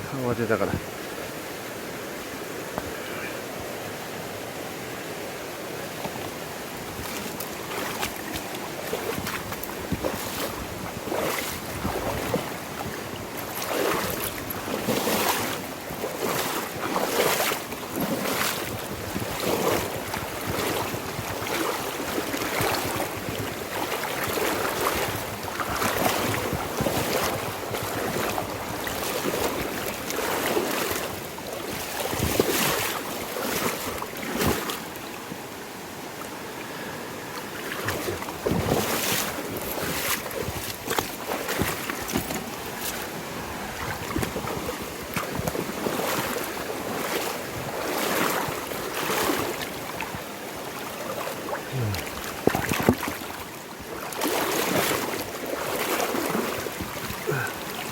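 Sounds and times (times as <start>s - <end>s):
water rushing in a river: 0.0s - 57.9s
splashes and knocks: 6.0s - 34.8s, 37.6s - 57.9s.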